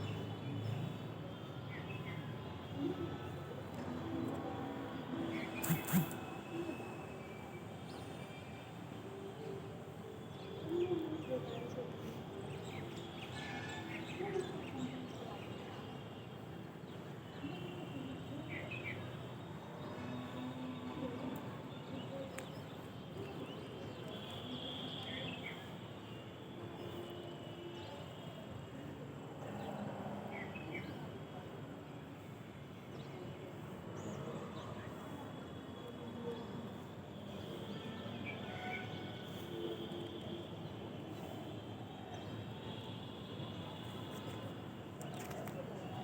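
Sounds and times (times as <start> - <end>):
faint distant voices: 0.0 - 46.0
short bird chirps: 5.5 - 6.4.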